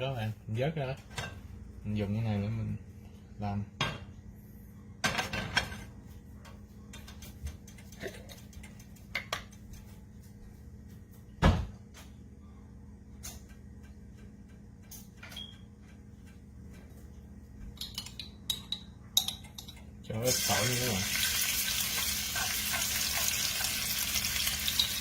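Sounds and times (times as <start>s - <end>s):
low steady hum: 0.0s - 25.0s
frying pan and utensils clattering: 5.0s - 6.0s, 17.8s - 25.0s.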